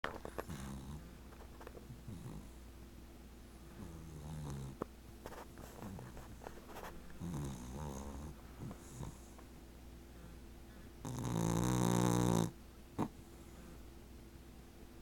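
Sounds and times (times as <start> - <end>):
puppy snoring: 0.1 - 1.2, 1.8 - 2.6, 3.7 - 4.9, 5.6 - 9.4, 11.0 - 13.2.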